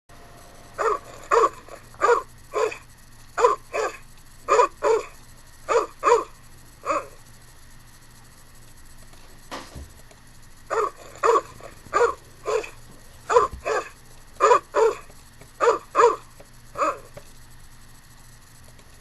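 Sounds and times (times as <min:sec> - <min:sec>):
dog barking: 0:00.8 - 0:02.8, 0:03.4 - 0:07.2, 0:10.7 - 0:17.2.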